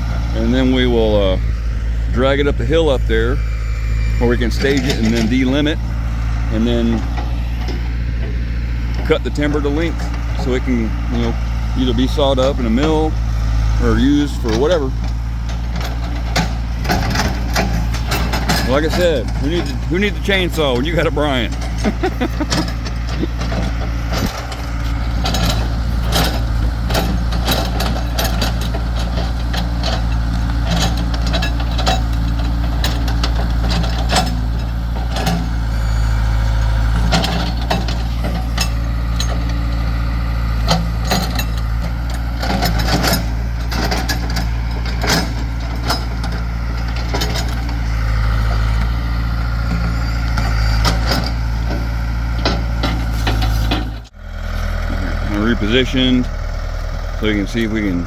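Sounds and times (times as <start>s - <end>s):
diesel engine running: 0.0s - 58.0s
sharp knocks and clanks: 14.1s - 35.7s, 36.9s - 39.9s, 40.5s - 54.1s.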